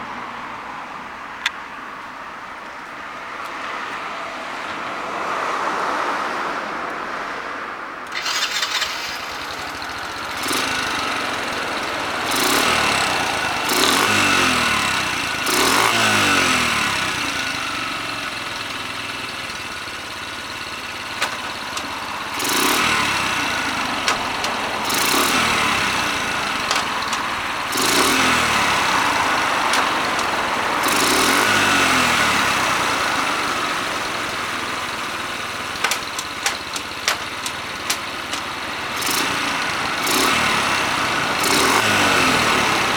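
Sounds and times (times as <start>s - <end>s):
small engine idling and revving: 8.1s - 42.9s
sharp clicks: 21.2s - 31.7s, 35.3s - 40.4s.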